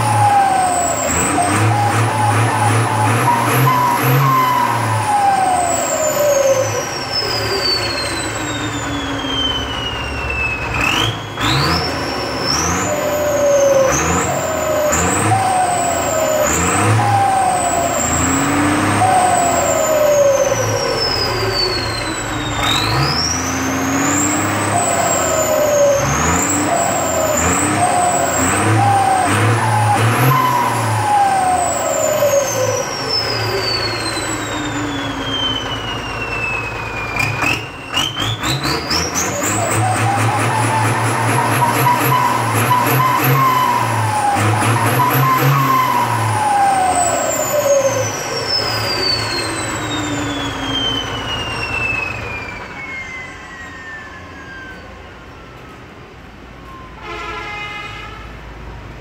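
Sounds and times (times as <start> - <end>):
diesel tractor engine revving: 0.0 - 54.4
turbo whistling: 0.0 - 55.4.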